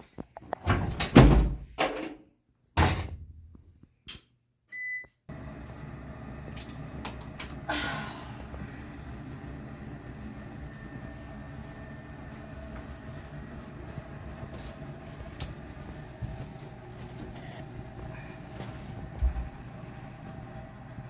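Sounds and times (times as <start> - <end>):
appliance humming: 4.8 - 21.0.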